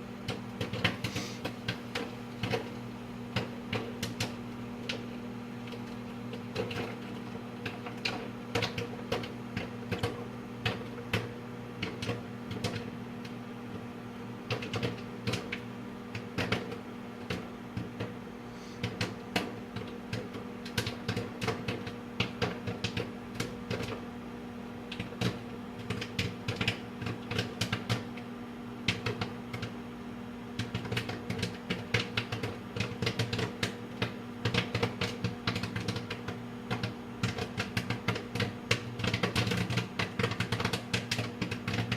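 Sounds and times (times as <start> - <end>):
microwave oven hum: 0.0 - 41.9
popcorn popping: 0.0 - 41.9.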